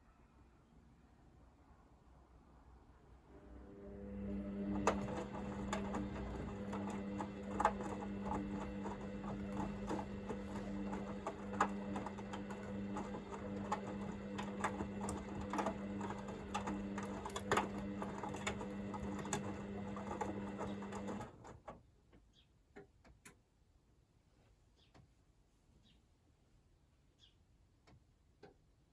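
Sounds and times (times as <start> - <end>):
washing machine motor hum: 3.2 - 21.7.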